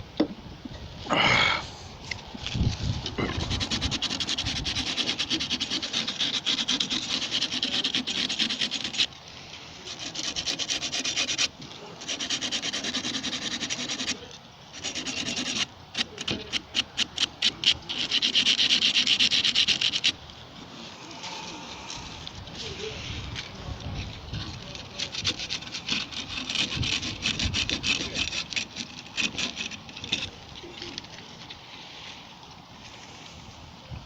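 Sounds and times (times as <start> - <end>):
abrasive scraping metal: 2.4 - 9.1.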